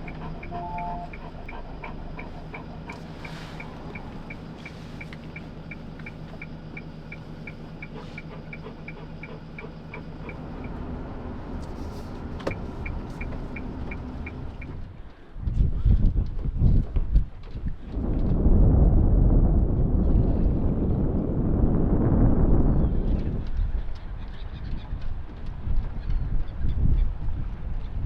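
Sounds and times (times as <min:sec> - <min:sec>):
turn signal ticking: 0:00.0 - 0:15.2
vehicle engine and road hum: 0:00.0 - 0:28.0.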